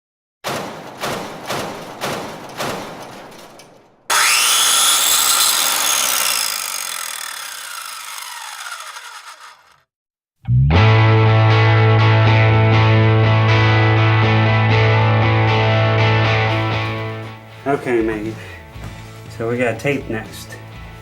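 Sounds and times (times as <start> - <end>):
power tool winding down: 4.1 - 9.9.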